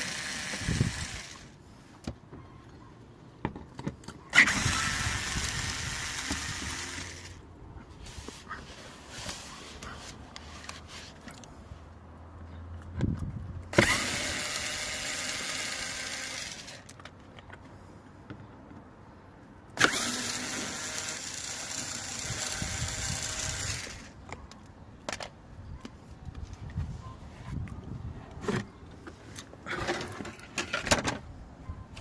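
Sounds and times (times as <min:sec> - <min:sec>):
power tool bursts: 0:00.0 - 0:01.4, 0:04.4 - 0:07.3, 0:13.8 - 0:16.8, 0:19.8 - 0:24.1
small clicks and handling noises: 0:16.8 - 0:18.9.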